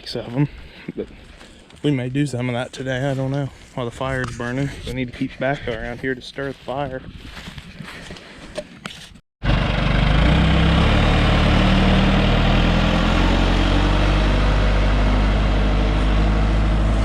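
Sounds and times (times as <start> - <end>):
diesel engine running: 9.4 - 17.0.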